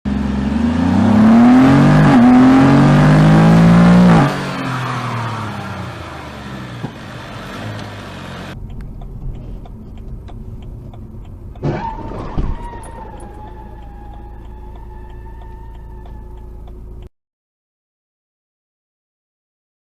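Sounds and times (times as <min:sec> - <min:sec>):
car engine revving: 0:00.1 - 0:17.1.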